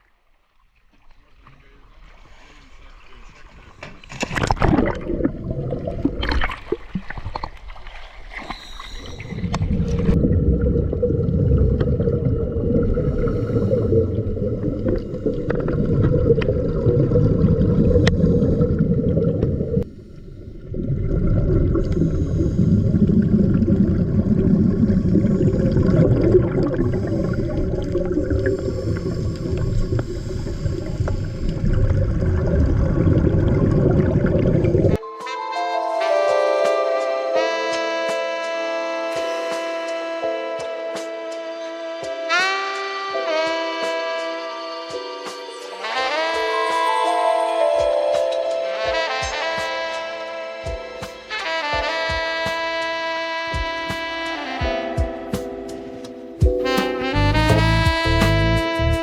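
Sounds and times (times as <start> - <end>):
muffled water gurgling and sloshing: 0.0 - 35.0.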